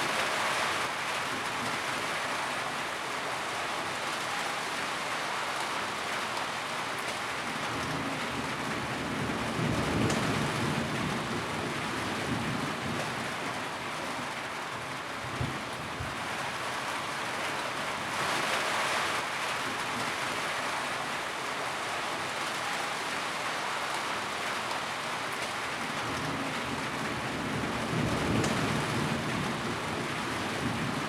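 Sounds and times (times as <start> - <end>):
rain on a tin roof: 0.0 - 31.0.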